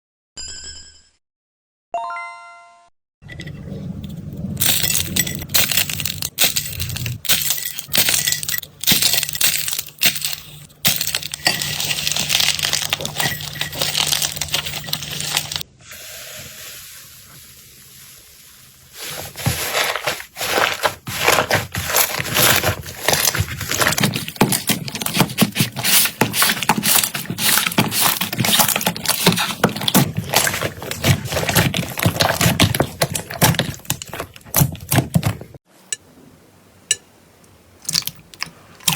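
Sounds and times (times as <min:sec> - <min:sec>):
slime crackling and squishing: 0:08.2 - 0:15.6, 0:19.0 - 0:35.6.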